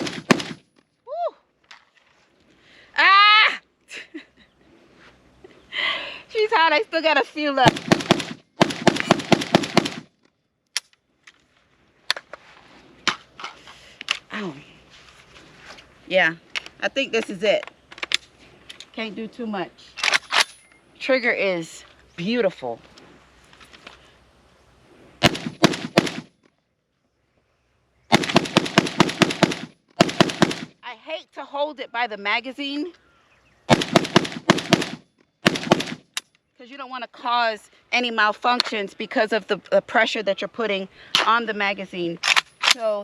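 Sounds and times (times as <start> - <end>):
rifle firing rapid shots: 0.0 - 0.6, 7.6 - 10.1, 25.2 - 26.3, 28.1 - 30.7, 33.7 - 36.0
single sharp gunshot cracks: 25.2 - 26.3.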